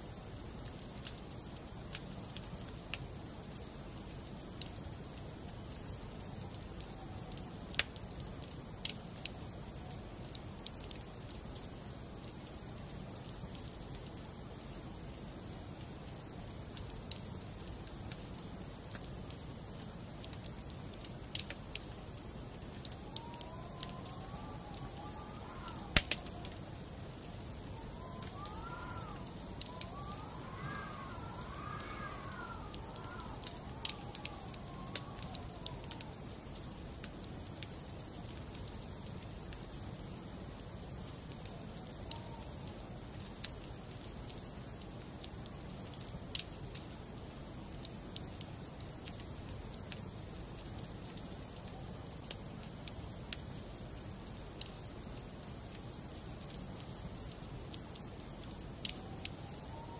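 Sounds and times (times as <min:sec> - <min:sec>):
wood fire crackling: 0:00.0 - 0:59.9
faint wavering wail: 0:22.9 - 0:36.4, 0:58.9 - 0:59.9.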